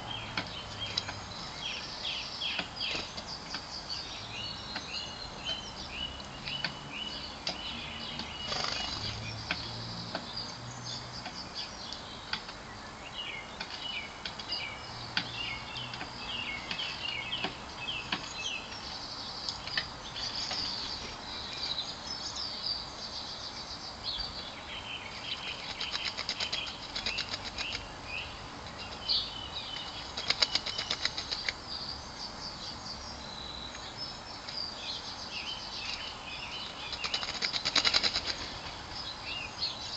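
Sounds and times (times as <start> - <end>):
small birds chirping: 0.0 - 39.9
wings fluttering: 8.4 - 9.2, 25.6 - 27.8, 29.8 - 31.6, 36.9 - 38.9.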